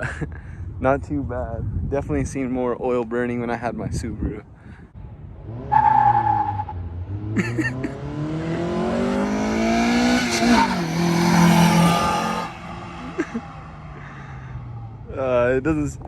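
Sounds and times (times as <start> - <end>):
car engine accelerating hard: 5.4 - 15.3.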